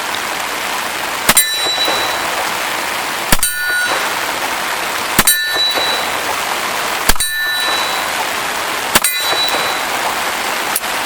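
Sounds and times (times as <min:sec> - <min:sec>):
rain hiss: 0:00.0 - 0:11.0
steel target ringing: 0:01.3 - 0:02.5, 0:03.3 - 0:04.4, 0:05.2 - 0:06.4, 0:07.1 - 0:08.2, 0:09.0 - 0:10.1.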